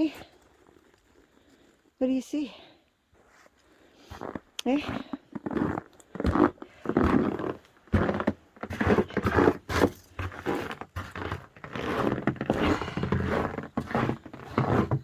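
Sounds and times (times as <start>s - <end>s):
footsteps crunching through snow: 3.1s - 15.0s.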